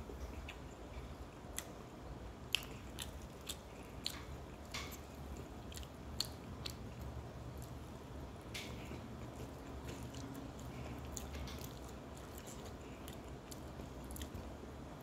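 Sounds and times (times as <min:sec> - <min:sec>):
person chewing food: 0:00.0 - 0:14.7
faint low hum: 0:00.0 - 0:15.0.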